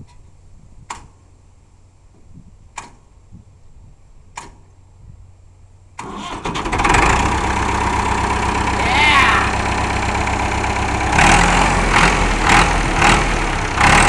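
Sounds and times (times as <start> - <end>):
diesel engine starting and running: 5.7 - 14.0.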